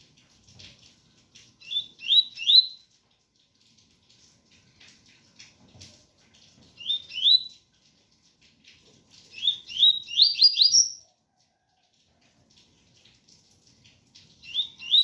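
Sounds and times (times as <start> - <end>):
bird singing whistled notes: 1.6 - 2.8, 6.8 - 7.6, 9.4 - 11.0, 14.4 - 15.0.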